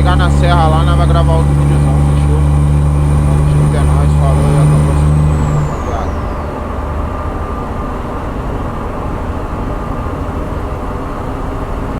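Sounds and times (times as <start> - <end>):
high whine gliding down: 0.0 - 11.8
road and engine rumble: 0.0 - 11.9
truck engine hum: 0.0 - 11.9.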